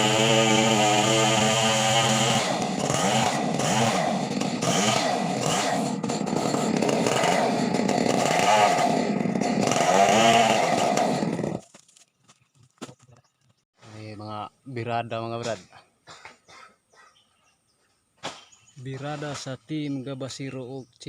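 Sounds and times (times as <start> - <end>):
chainsaw engine revving: 0.0 - 11.6.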